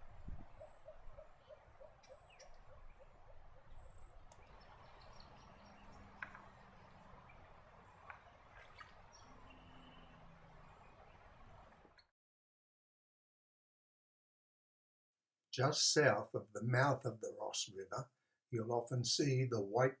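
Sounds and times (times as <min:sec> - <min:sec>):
high bird chirps: 0:03.7 - 0:11.2.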